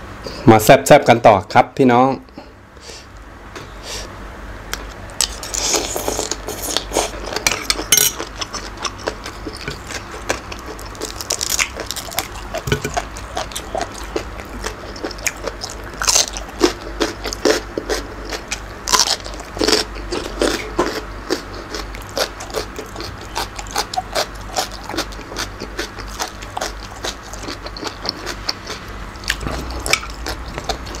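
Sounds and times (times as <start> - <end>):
chewing and crunching food: 4.7 - 31.0.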